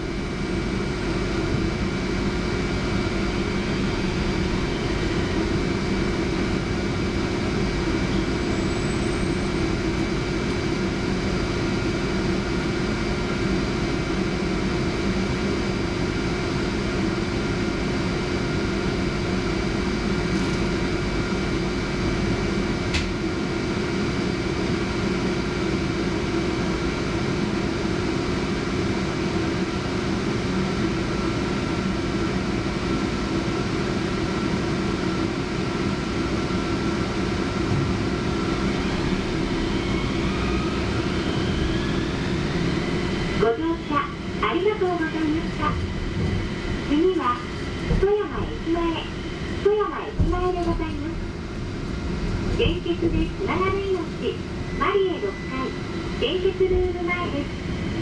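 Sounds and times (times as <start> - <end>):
tram cabin rumble: 0.0 - 58.0
constant hum: 35.3 - 58.0.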